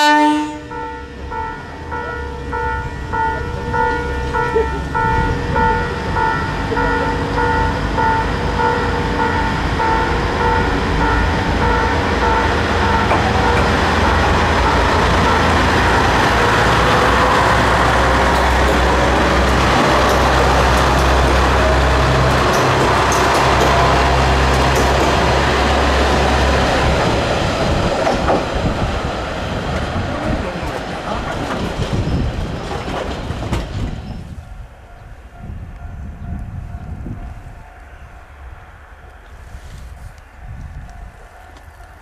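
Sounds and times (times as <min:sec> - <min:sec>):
diesel train engine drone: 0:00.0 - 0:42.0
train rolling rumble: 0:00.0 - 0:42.0
level crossing warning bell: 0:00.2 - 0:26.4.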